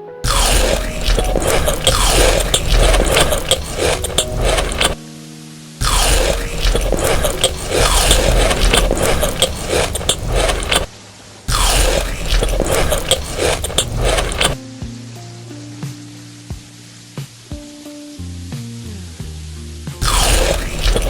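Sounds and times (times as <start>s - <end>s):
crunchy chewing: 0.3s - 5.0s, 5.8s - 10.9s, 11.5s - 14.6s, 20.0s - 21.0s
scraping: 0.3s - 5.0s, 5.8s - 10.9s, 11.5s - 14.6s, 20.0s - 21.0s.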